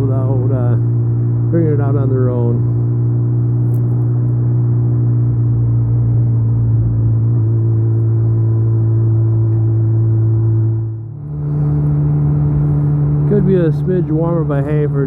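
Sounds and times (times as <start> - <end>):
motorcycle engine droning: 0.0 - 15.0.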